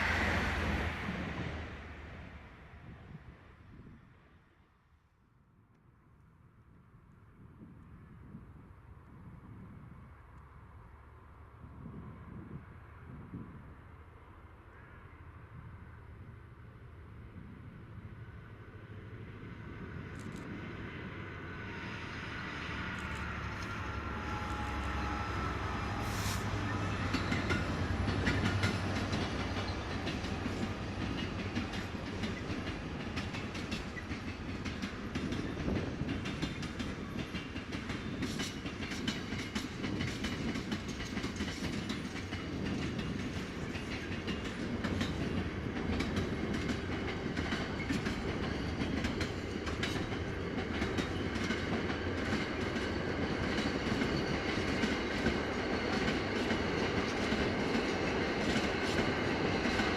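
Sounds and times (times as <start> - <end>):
train wheels rumbling on rail: 0.0 - 4.0, 17.2 - 59.9.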